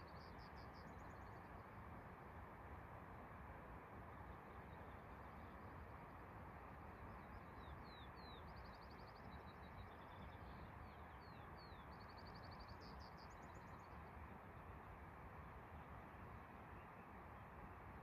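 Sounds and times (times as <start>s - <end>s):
songbird singing: 0.0s - 1.6s, 4.2s - 6.2s, 7.0s - 14.2s.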